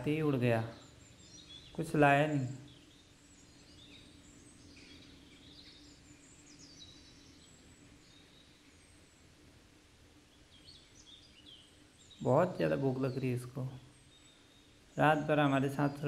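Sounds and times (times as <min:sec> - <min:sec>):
bird chirps and whistled calls: 0:00.0 - 0:09.3
faint low hum: 0:00.0 - 0:16.0.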